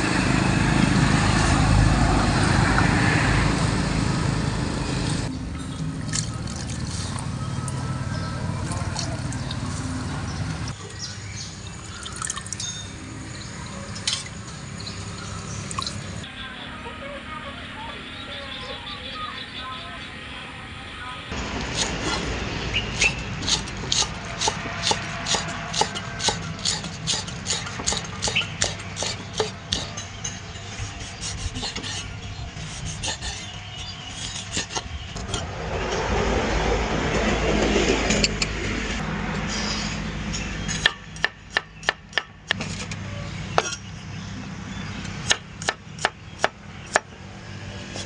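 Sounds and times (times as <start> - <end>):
rough rubbing and scraping: 21.3 - 36.4, 47.8 - 48.0
knife chopping on wooden board: 22.9 - 29.9.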